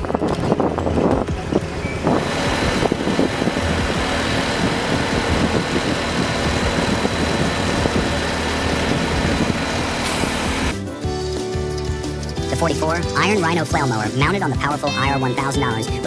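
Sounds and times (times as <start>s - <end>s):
dense rushing noise: 0.0s - 11.2s
heavy vehicle engine running: 0.0s - 14.3s.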